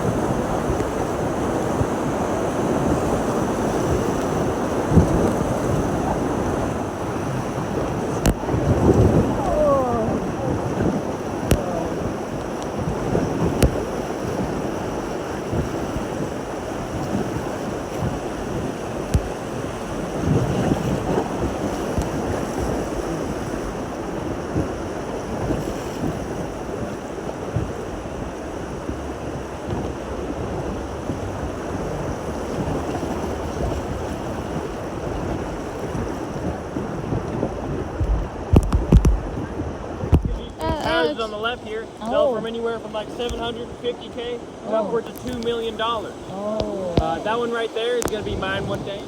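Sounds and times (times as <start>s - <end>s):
river water splashing: 0.0s - 49.0s
wind buffeting microphone: 0.0s - 49.0s.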